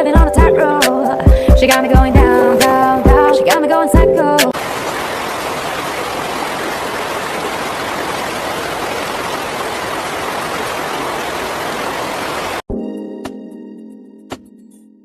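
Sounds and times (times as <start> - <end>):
rushing water: 4.5 - 12.6.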